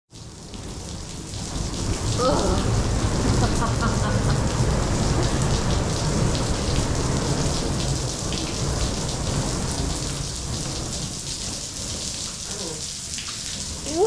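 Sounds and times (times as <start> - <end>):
artificial rain falling: 0.1 - 14.0
low rumble: 1.4 - 12.0.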